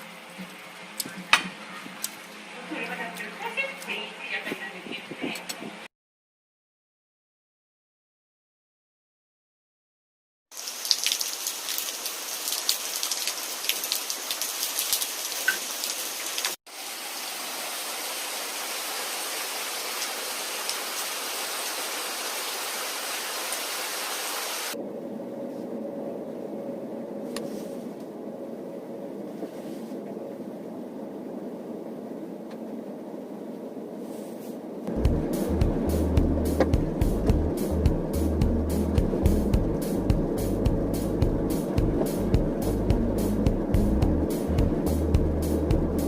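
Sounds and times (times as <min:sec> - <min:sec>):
rain: 0:00.0 - 0:04.0, 0:10.5 - 0:34.2, 0:34.8 - 0:46.0
faint hum: 0:34.7 - 0:46.0.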